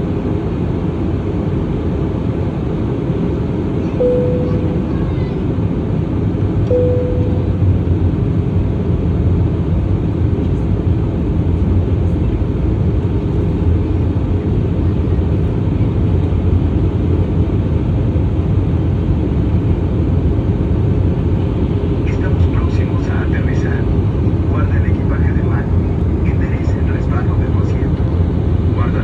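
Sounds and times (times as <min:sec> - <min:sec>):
airliner engine rumble: 0:00.0 - 0:29.0
clear tone: 0:04.0 - 0:05.4, 0:06.7 - 0:07.9.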